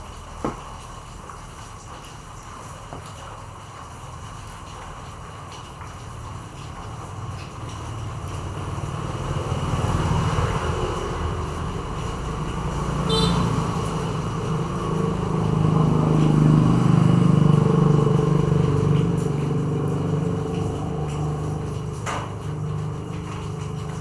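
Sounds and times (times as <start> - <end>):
vehicle engine running: 7.4 - 24.0.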